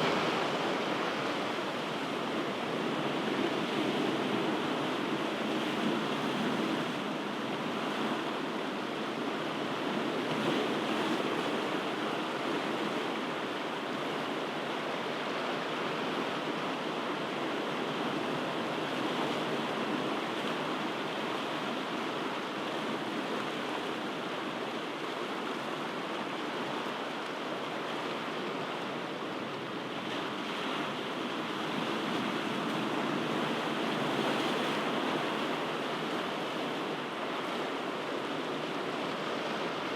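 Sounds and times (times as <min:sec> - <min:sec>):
ocean waves washing in: 0:00.0 - 0:16.4.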